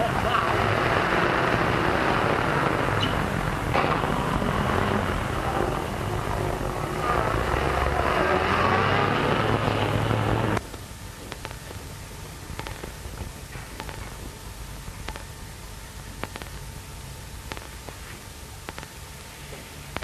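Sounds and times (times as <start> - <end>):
soundtrack hiss: 0.0 - 20.0
street noise: 0.0 - 20.0
clicks: 12.6 - 14.2, 16.2 - 16.6, 17.5 - 18.0, 18.6 - 18.9.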